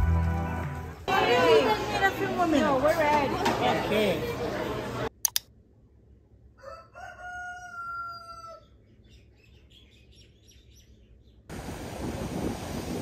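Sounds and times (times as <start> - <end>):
rooster crowing: 6.6 - 8.7
small birds chirping: 8.6 - 11.5.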